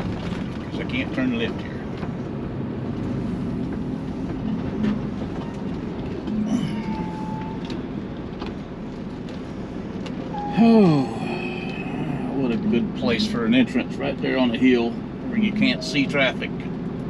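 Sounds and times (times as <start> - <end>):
truck diesel engine droning: 0.0 - 17.0
faint high tone: 6.3 - 7.7, 10.3 - 12.4.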